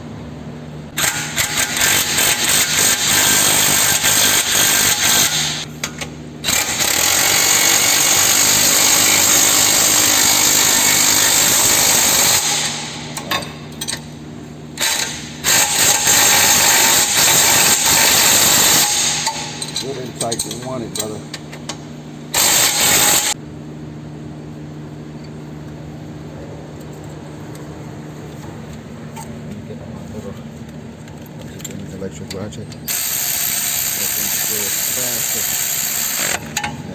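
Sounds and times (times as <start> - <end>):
power tool driving nuts: 1.0 - 5.7, 6.4 - 13.4, 14.8 - 19.9, 22.3 - 23.4, 32.9 - 36.7.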